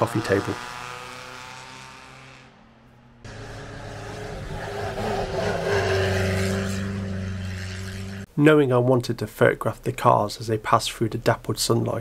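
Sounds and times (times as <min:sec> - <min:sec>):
racing car engines at full throttle: 0:00.0 - 0:08.3.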